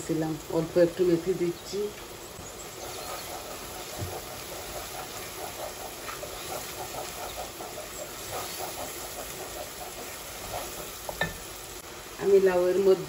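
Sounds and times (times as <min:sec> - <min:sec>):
onion sizzling in oil: 0:00.0 - 0:13.0
spatula scraping pot: 0:02.7 - 0:11.6.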